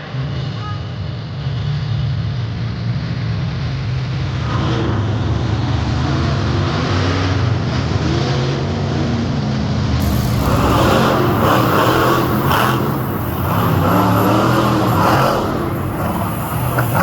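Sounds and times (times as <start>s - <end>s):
monster truck engine revving: 10.0s - 17.0s.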